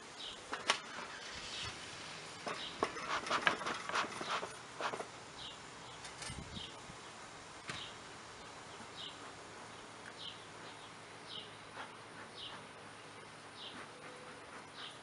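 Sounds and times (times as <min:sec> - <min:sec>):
bird chirping: 0:00.0 - 0:01.8, 0:02.4 - 0:04.6, 0:05.4 - 0:15.0
clicks and scrapes of beehive tools: 0:00.5 - 0:01.1, 0:02.4 - 0:05.1.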